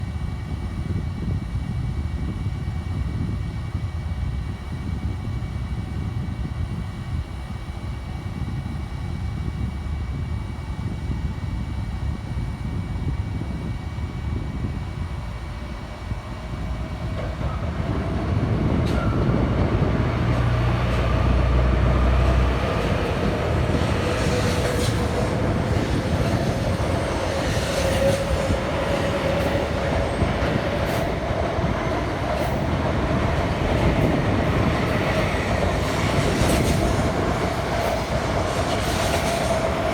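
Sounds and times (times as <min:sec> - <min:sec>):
train whine: 0:00.0 - 0:39.9
train rumbling: 0:08.3 - 0:39.9.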